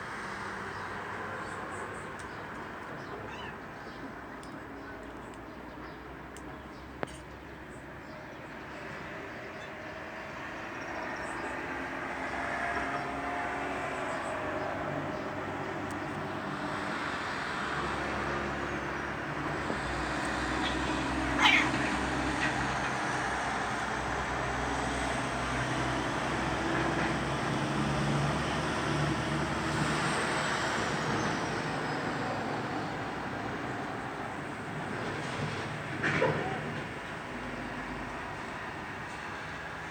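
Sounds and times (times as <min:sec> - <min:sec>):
traffic hum: 0:00.0 - 0:39.9
cats caterwauling: 0:03.2 - 0:03.6, 0:20.8 - 0:22.2.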